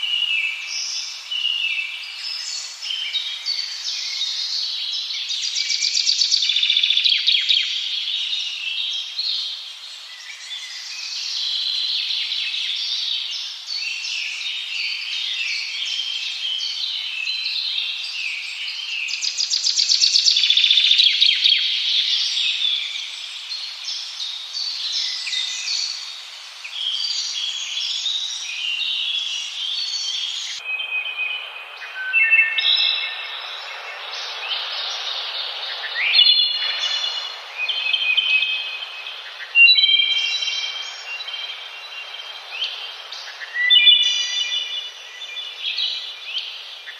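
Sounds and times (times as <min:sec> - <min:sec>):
chorus of small birds chirping: 0:00.0 - 0:46.9.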